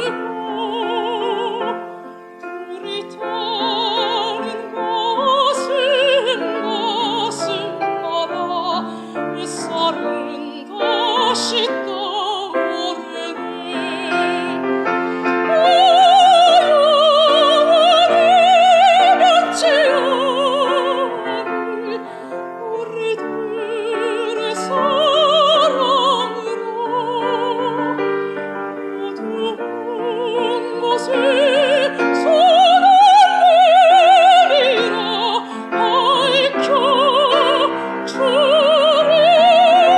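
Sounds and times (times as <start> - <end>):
piano accompaniment: 0.0 - 39.9.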